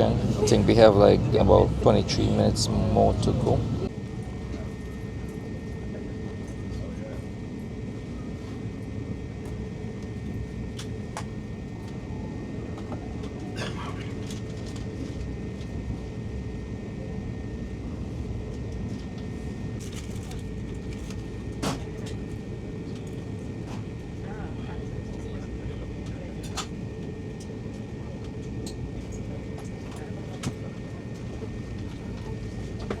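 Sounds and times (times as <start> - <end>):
faint steady whine: 0.0 - 3.9
train car rumble: 0.0 - 3.9.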